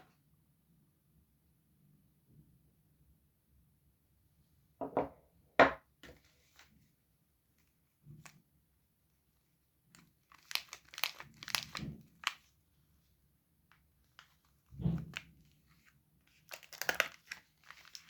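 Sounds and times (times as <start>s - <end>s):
soap wrapper crinkling and tearing: 9.8s - 12.6s, 13.7s - 18.0s.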